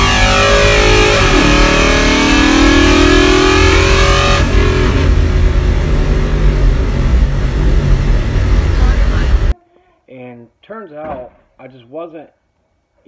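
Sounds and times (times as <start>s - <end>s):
drag car engine at full throttle: 0.0s - 9.5s.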